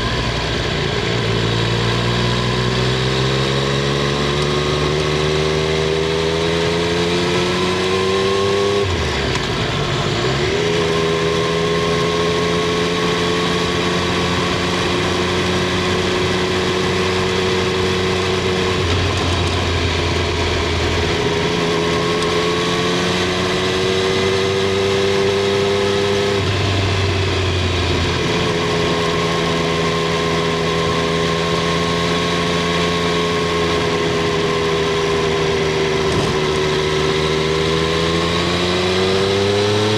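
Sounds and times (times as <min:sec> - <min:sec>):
motorcycle engine and exhaust: 0:00.0 - 0:39.9
gear change: 0:33.1 - 0:37.8.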